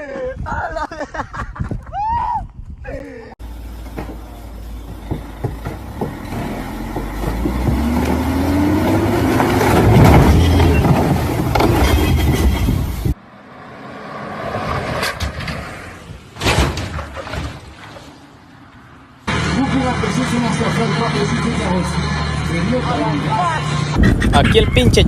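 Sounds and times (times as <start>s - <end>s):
truck engine revving under load: 3.4s - 15.8s.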